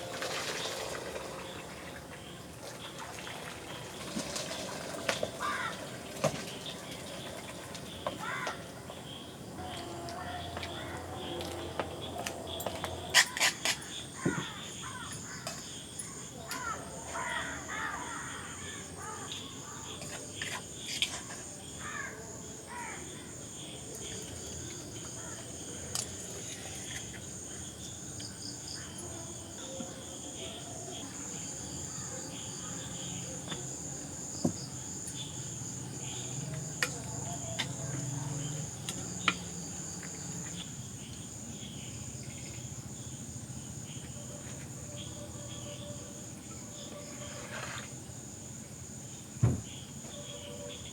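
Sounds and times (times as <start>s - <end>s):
insects droning: 0.0s - 50.9s
birds calling: 5.1s - 20.1s.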